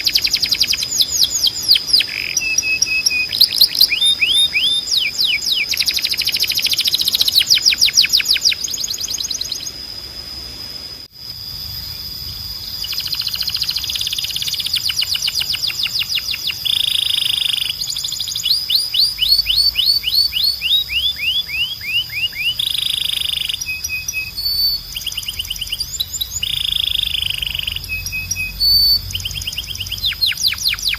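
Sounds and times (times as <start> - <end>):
canary singing buzzy trills: 0.0 - 11.0, 11.7 - 30.9.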